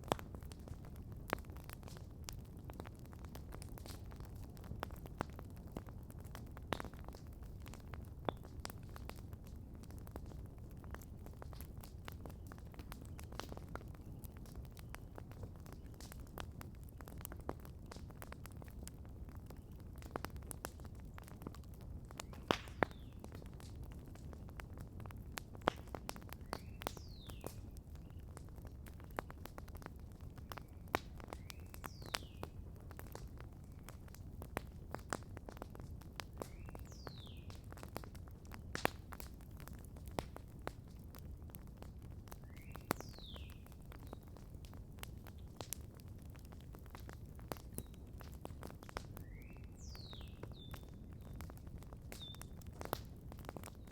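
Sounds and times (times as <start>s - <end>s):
campfire crackling and popping: 0.0s - 53.9s.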